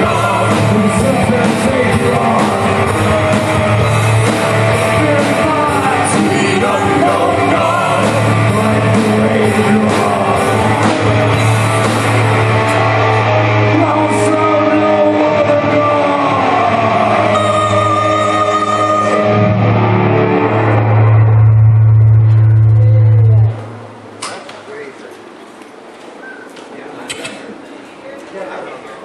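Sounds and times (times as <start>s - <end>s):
person singing: 0.0s - 20.4s
live rock band playing: 0.0s - 23.6s
bass line: 0.0s - 24.1s.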